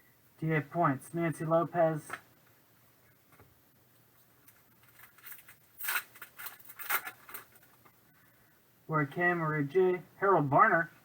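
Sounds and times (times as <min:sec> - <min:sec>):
trading cards scraping rustles: 0:04.2 - 0:07.9.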